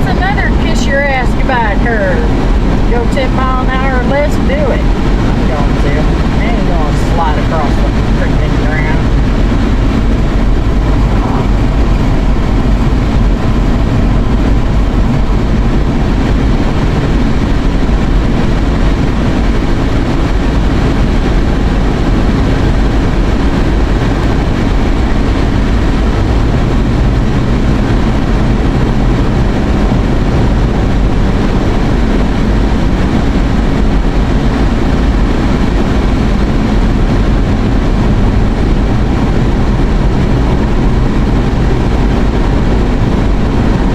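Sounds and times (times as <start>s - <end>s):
road and engine noise in car: 0.0s - 43.9s.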